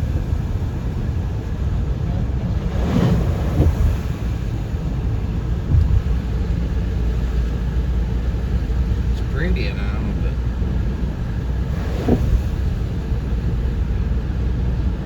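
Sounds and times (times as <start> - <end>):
car driving road noise: 0.0 - 15.0
short thump: 5.6 - 6.3.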